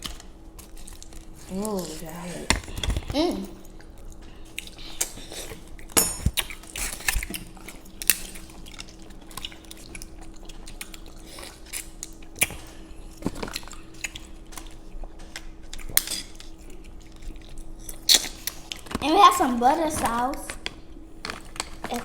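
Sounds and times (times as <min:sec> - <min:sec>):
chewing: 0:00.0 - 0:19.0
faint steady hum: 0:00.0 - 0:22.0
utensils clinking against dishes: 0:05.2 - 0:07.2.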